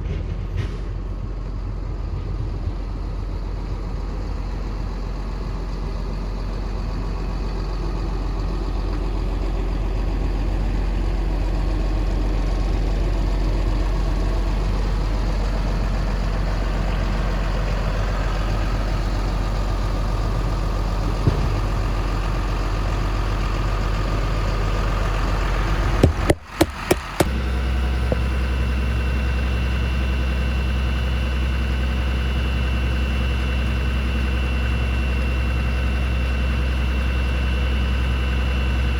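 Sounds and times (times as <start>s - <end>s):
diesel truck engine idling: 1.0s - 38.9s
clicks: 26.0s - 27.3s.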